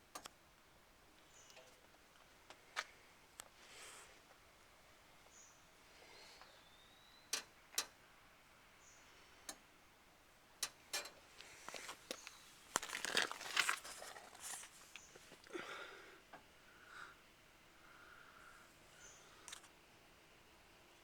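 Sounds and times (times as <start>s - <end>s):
rustling crinkling noises: 11.0s - 15.7s.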